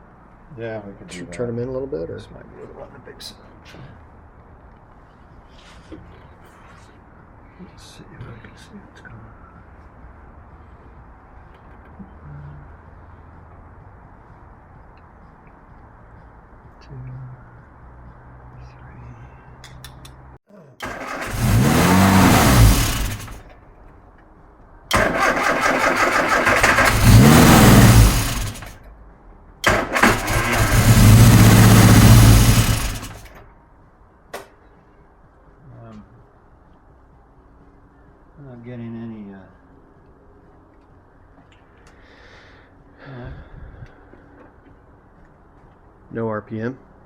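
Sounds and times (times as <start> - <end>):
car engine idling: 20.8 - 23.9, 24.9 - 28.9, 29.6 - 33.4.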